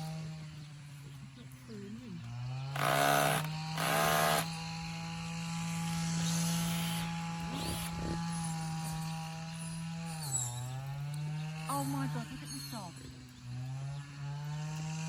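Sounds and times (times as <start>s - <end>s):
cordless drill driving a screw: 2.7s - 4.6s, 5.8s - 8.7s.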